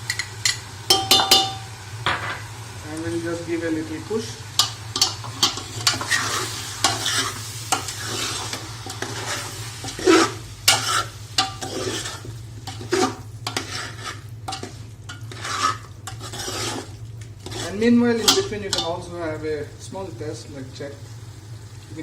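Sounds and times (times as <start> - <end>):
spoon scraping a frying pan: 0.0 - 2.5, 4.6 - 19.0
food sizzling in oil: 0.0 - 22.0.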